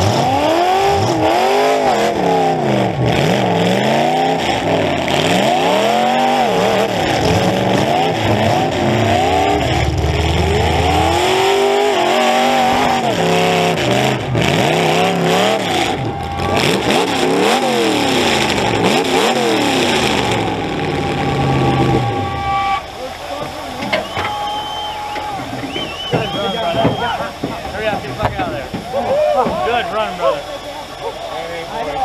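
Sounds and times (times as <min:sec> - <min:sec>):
car engine revving: 0:00.0 - 0:32.0
sharp knocks: 0:25.4 - 0:29.6.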